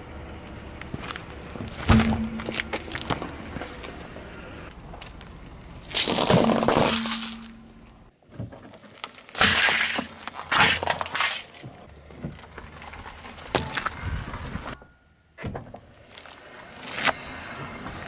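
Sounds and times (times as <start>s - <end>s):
objects crushed under car tyre: 1.1s - 4.0s, 5.8s - 14.8s.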